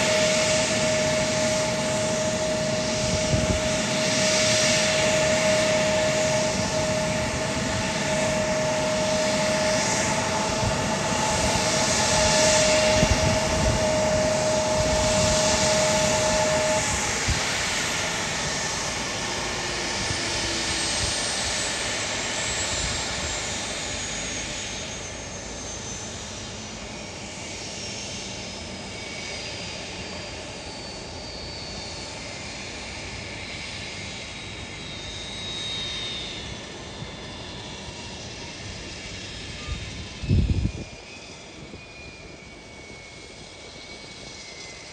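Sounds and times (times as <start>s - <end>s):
high whine falling in pitch: 0.0s - 20.7s
jet engines roaring: 0.0s - 44.9s.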